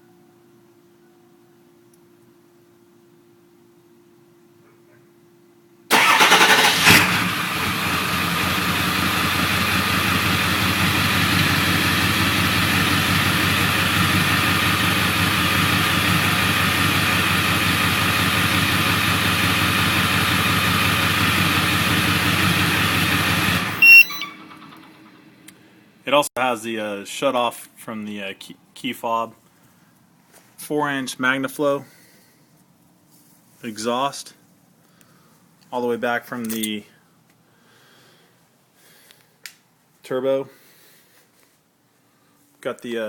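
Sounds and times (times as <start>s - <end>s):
diesel engine idling: 5.9s - 25.4s
short beep: 23.7s - 24.7s.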